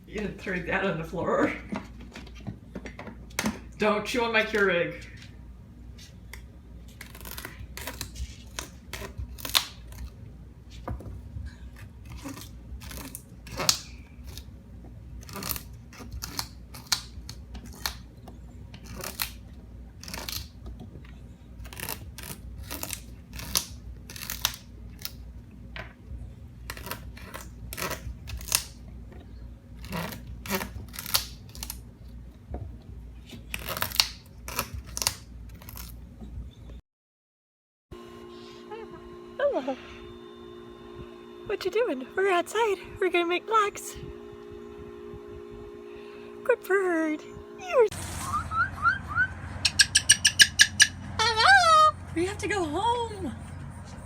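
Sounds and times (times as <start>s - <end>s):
cockatoo beak cracking and crunching: 6.2s - 10.2s, 11.6s - 14.6s, 15.2s - 25.2s, 26.6s - 28.9s, 29.8s - 32.4s, 33.2s - 36.0s.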